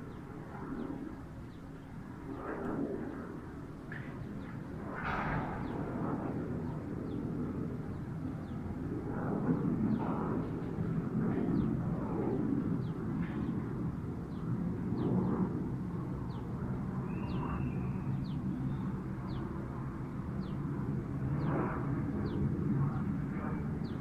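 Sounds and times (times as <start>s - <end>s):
long low whistle: 17.1s - 18.2s.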